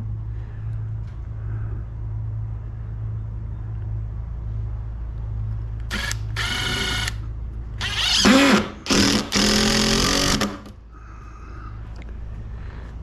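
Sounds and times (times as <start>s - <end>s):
steady low hum: 0.0s - 13.0s
power drill driving screws: 5.9s - 7.2s, 7.8s - 10.7s.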